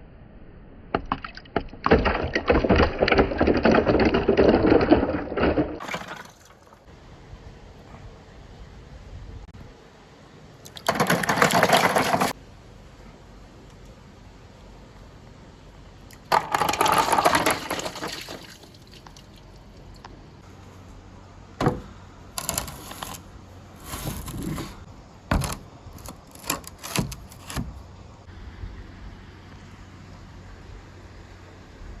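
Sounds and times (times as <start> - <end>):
marbles rattling down a marble run: 16.3 - 18.4.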